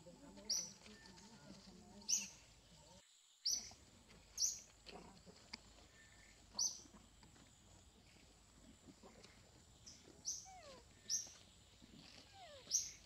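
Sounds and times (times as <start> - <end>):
bird chirping: 0.0 - 4.8, 5.8 - 13.0
faint outdoor background: 0.0 - 13.0.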